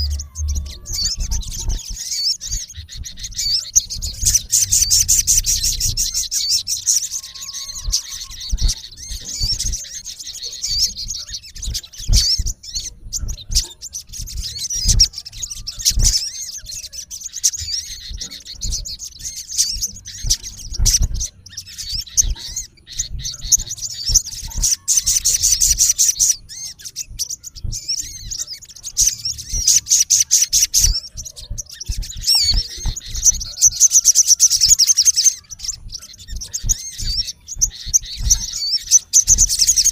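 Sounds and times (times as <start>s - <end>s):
bird calling in harsh trills: 0.0s - 39.9s
low thumps: 2.8s - 6.8s, 35.6s - 39.8s.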